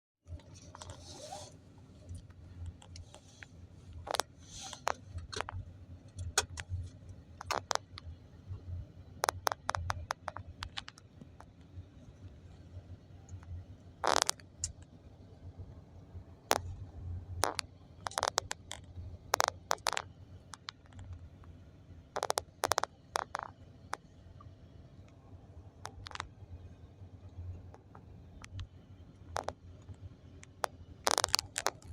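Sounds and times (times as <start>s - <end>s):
sharp clicks and knocks: 2.1s - 8.1s, 9.2s - 11.7s, 17.4s - 21.6s, 22.2s - 24.5s, 29.3s - 31.9s.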